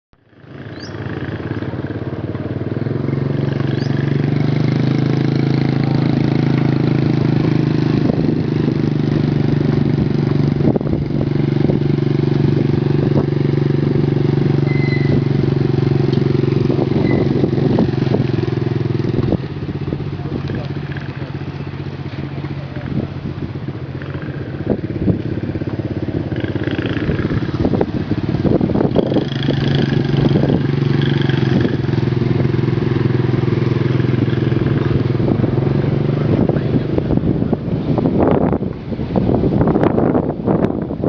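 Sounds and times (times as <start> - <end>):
motorbike engine running: 0.2 - 41.0.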